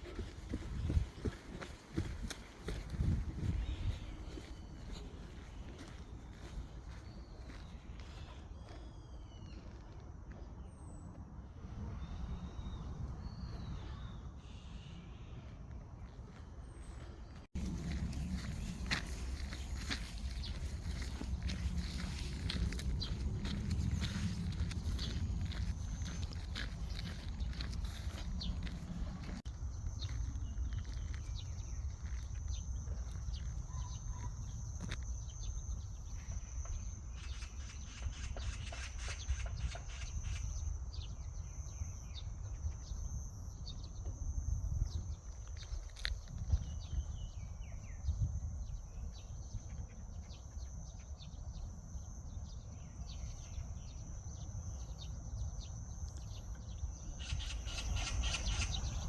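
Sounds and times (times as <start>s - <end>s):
birds chirping: 0.0s - 43.1s, 44.9s - 59.0s
wind rumble on microphone: 0.0s - 59.0s
footsteps clicking: 17.6s - 29.4s.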